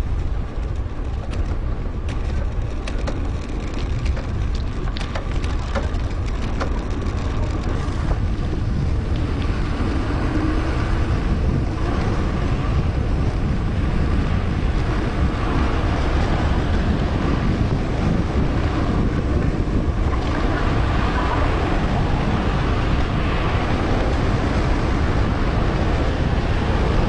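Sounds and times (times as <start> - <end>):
sharp clicks and crackles: 0.0 - 9.6
bike tyres rolling: 0.0 - 27.0
wind rushing over microphone: 0.0 - 27.0.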